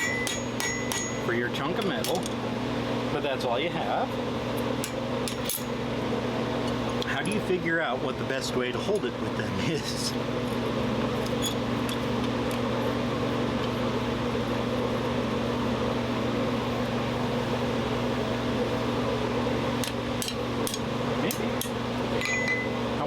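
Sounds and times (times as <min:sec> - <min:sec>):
fan motor humming: 0:00.0 - 0:23.0.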